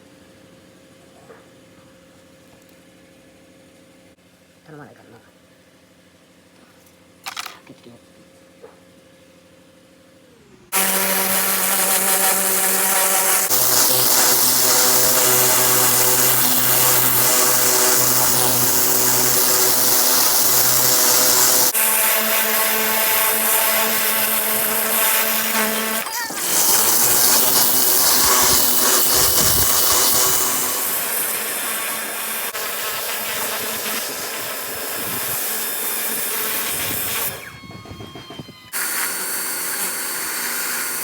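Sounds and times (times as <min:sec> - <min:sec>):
power tool whining at high speed: 0:10.7 - 0:41.0.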